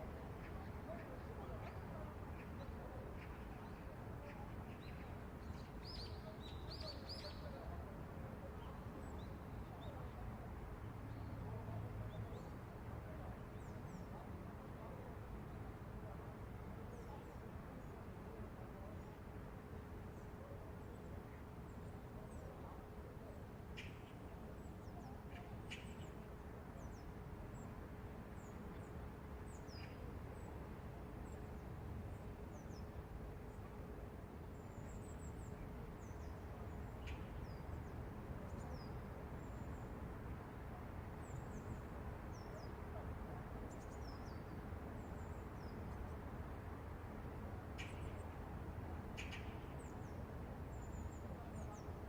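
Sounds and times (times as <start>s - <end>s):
faint steady tone: 0.0s - 52.0s
small birds chirping: 49.1s - 52.0s.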